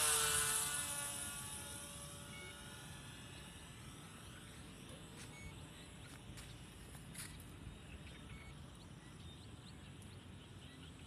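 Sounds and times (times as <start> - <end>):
model airplane motor buzzing: 0.0 - 7.8.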